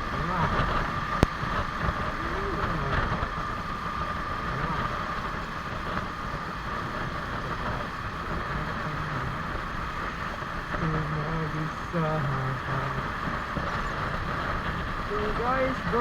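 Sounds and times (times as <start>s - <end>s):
motorcycle engine running: 0.0s - 16.0s
wind and road noise: 0.0s - 16.0s.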